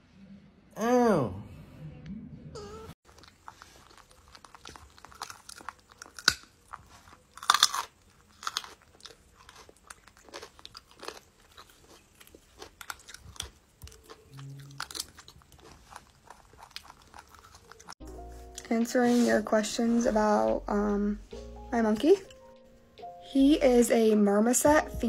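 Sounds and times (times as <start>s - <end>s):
carrot crunching: 3.0s - 18.0s.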